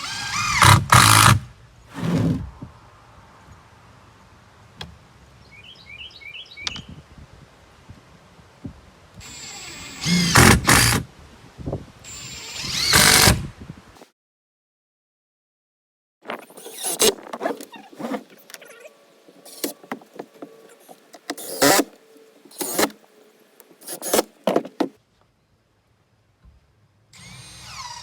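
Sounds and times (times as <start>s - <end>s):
power drill driving screws: 0.0s - 1.4s, 9.2s - 11.0s, 12.1s - 13.5s, 16.6s - 17.1s, 21.3s - 21.9s, 22.5s - 23.0s, 23.8s - 24.3s, 27.2s - 28.0s.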